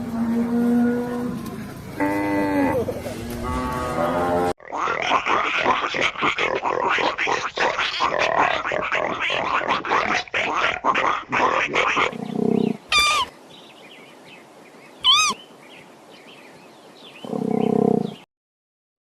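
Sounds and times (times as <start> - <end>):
low rumbling growl: 0.0 - 4.6
animal grunting: 1.4 - 13.3, 17.2 - 18.2
high rising and falling calls: 12.9 - 13.3, 15.0 - 15.4.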